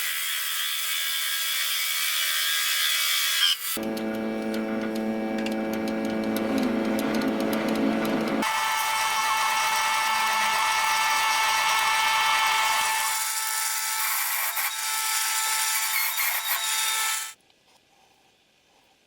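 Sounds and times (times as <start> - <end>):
power tool motor whining: 3.7 - 17.4.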